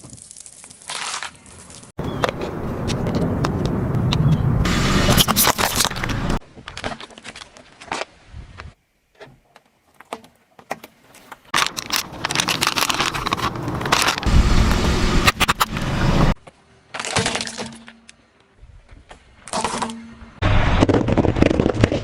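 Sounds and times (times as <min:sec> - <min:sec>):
objects crushed under tyres: 0:16.9 - 0:18.1, 0:19.4 - 0:22.0.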